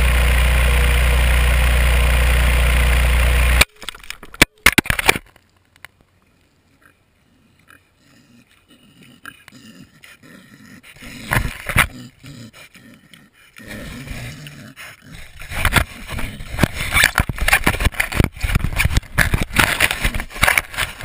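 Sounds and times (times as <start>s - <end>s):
pig grunting: 6.7s - 16.6s.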